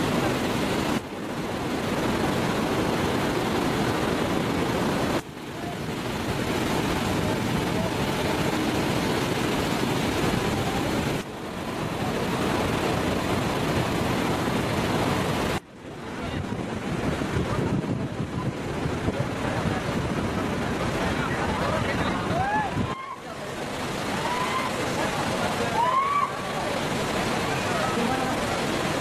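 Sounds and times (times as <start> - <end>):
wind on microphone: 0.0 - 25.6
waterfall roaring: 0.0 - 29.0.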